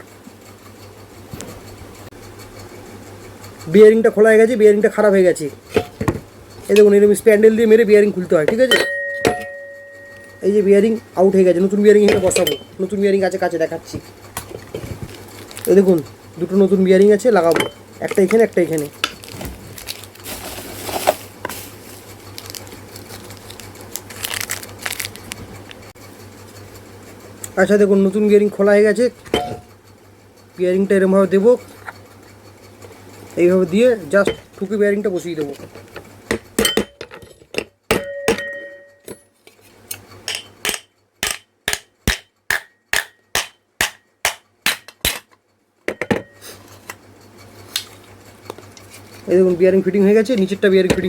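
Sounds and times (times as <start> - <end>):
metal tapping strikes: 5.7 - 7.0, 8.4 - 10.5, 12.0 - 12.9, 17.4 - 18.4, 29.2 - 29.8, 34.2 - 34.6, 36.3 - 39.3, 39.9 - 46.4
packaging crinkling and tearing: 15.0 - 16.1, 18.2 - 25.9.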